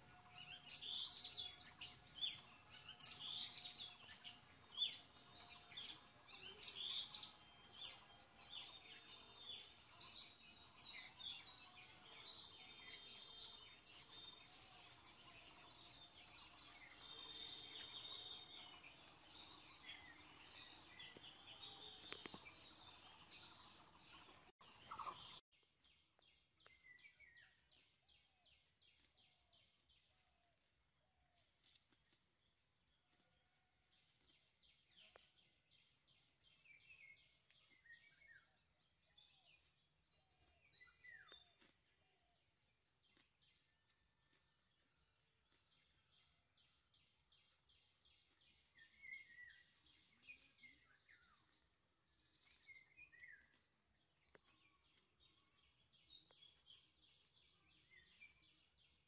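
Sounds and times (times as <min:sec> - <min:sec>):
birds chirping: 0:00.0 - 0:25.4, 0:45.6 - 0:59.0.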